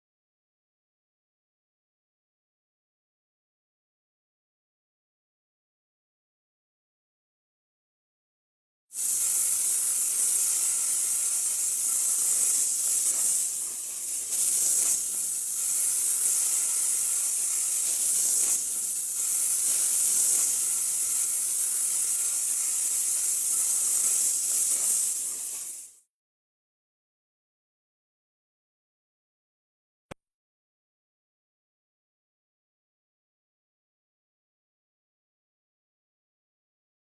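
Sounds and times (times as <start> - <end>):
steady high hiss: 9.0 - 25.9.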